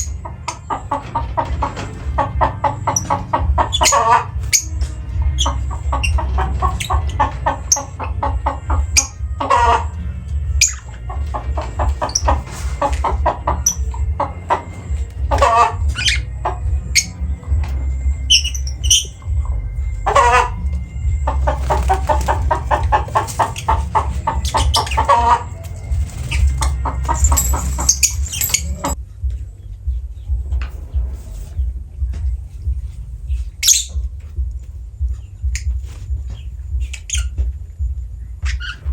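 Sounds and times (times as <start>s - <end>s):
birds clucking chatter: 0.0s - 38.9s
low hum: 0.0s - 38.9s
high bird chirps: 18.0s - 19.4s, 23.1s - 29.0s.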